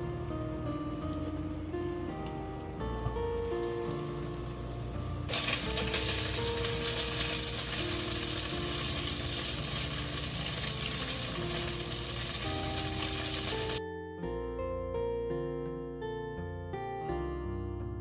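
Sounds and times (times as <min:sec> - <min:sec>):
soft background music: 0:00.0 - 0:18.0
food sizzling in a pan: 0:05.3 - 0:13.8.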